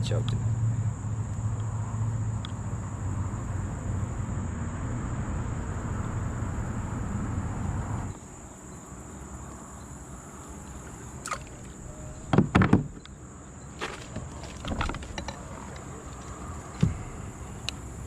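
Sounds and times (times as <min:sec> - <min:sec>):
insects buzzing: 0:00.0 - 0:18.0
knocks and clunks: 0:11.3 - 0:13.2, 0:13.8 - 0:17.2.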